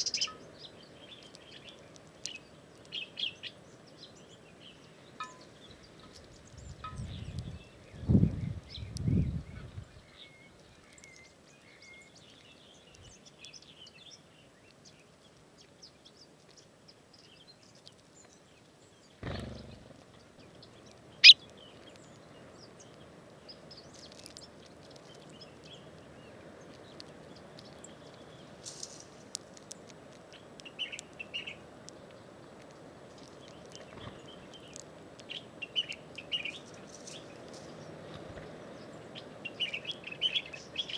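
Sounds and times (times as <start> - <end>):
small birds chirping: 0.0 - 40.9
steady outdoor hiss: 0.0 - 40.9.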